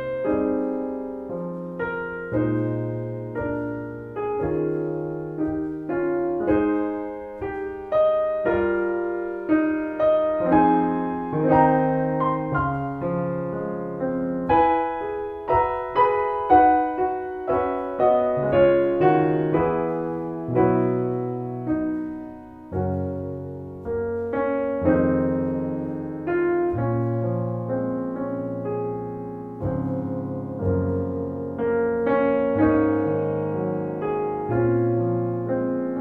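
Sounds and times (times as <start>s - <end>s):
slow gentle piano piece: 0.0s - 36.0s.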